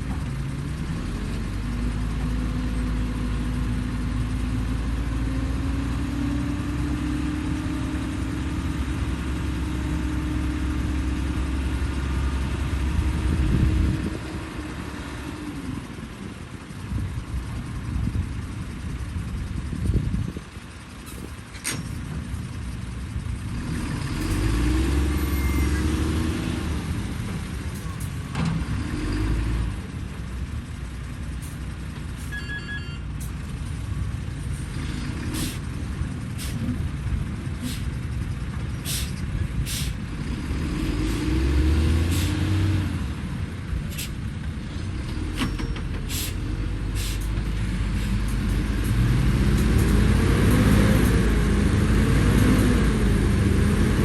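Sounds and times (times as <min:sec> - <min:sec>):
diesel earthmoving machinery running: 0:00.0 - 0:54.0
short beeps: 0:25.3 - 0:25.9, 0:32.3 - 0:33.1.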